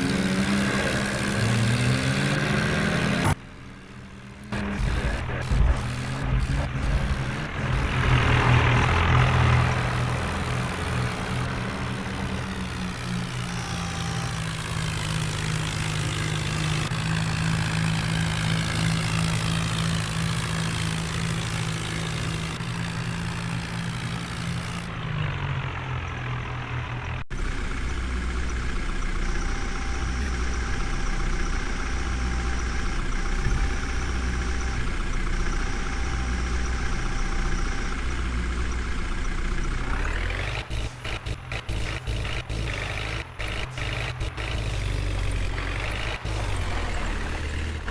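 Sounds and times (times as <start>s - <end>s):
diesel engine running: 0.0s - 47.9s
engine idling with pulsing throb: 26.9s - 47.9s.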